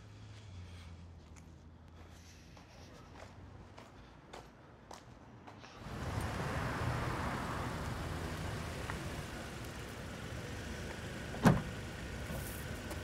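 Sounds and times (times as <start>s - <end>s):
street noise: 0.0s - 13.0s
small car engine idling: 5.8s - 13.0s.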